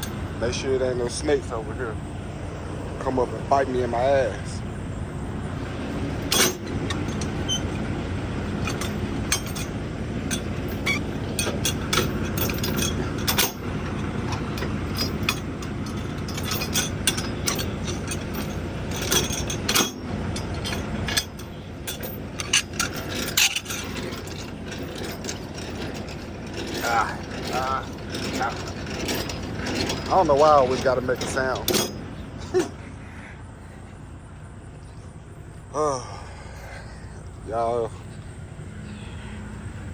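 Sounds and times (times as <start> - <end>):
semi truck idling: 0.0 - 39.9
metallic clinks and scrapes: 5.6 - 32.9.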